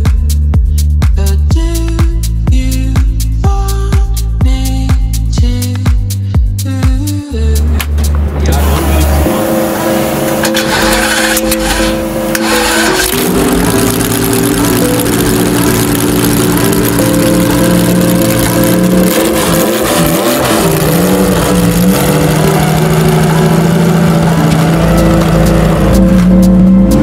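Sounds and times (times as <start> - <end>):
supercar engine running: 6.9 - 27.0.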